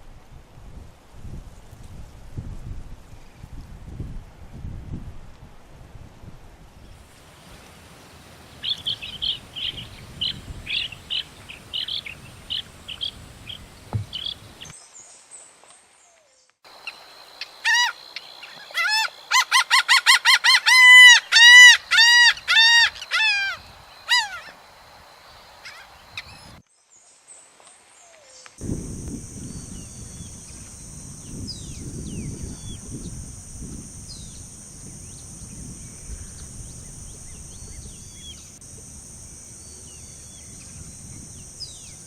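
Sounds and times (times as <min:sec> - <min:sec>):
birds calling: 0:07.1 - 0:14.7.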